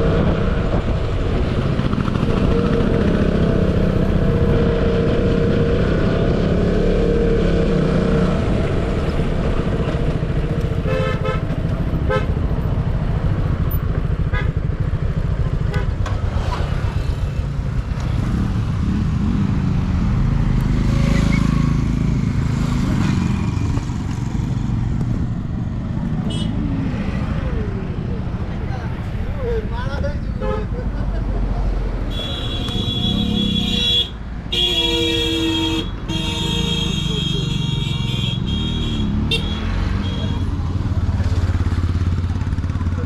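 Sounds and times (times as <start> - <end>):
motorcycle engine running: 8.8 - 20.4, 36.2 - 43.0.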